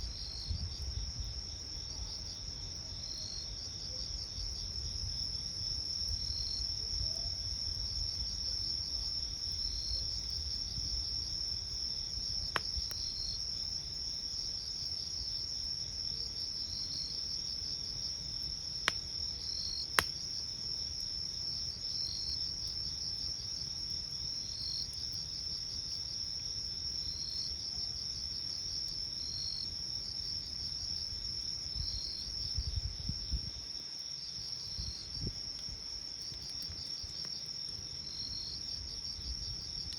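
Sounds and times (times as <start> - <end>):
crickets trilling: 0.0 - 39.9
firewood popping: 12.4 - 13.2, 18.8 - 19.1, 19.8 - 20.3, 35.3 - 38.0.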